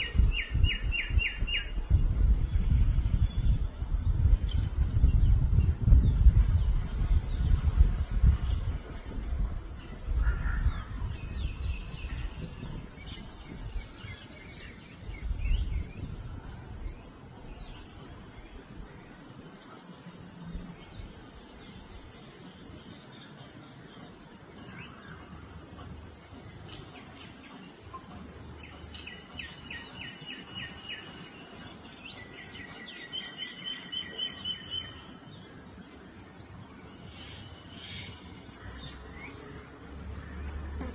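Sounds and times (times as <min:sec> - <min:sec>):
bird chirping: 0:17.0 - 0:40.9.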